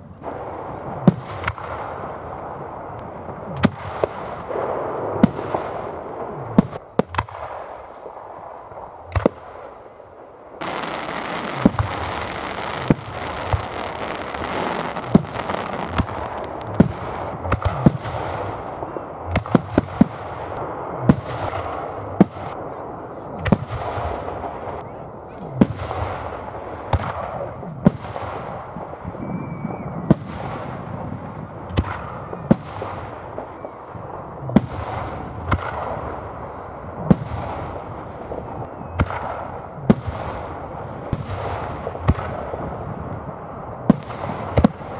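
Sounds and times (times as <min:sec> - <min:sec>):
continuous hiss: 0:00.0 - 0:29.5
firework bangs: 0:00.0 - 0:44.9.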